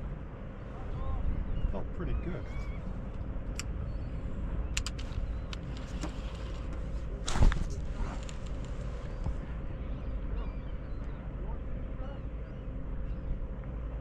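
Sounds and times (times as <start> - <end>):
boat engine rumble: 0.0 - 14.0
light clicks: 4.7 - 6.8.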